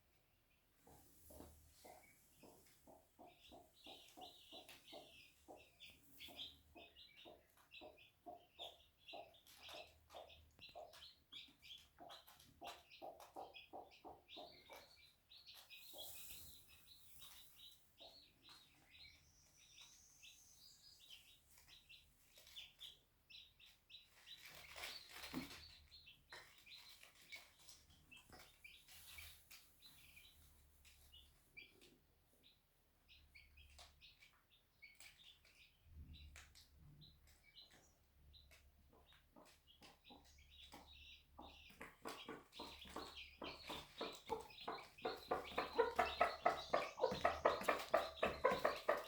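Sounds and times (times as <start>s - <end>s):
chicks peeping: 0.0s - 49.0s
hen clucking: 0.9s - 19.0s, 38.9s - 49.0s.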